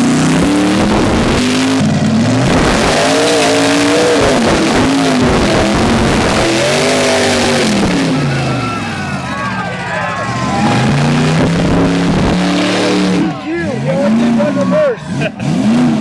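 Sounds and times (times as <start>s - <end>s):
truck engine revving: 0.0s - 16.0s
loud steady rushing noise: 2.4s - 16.0s.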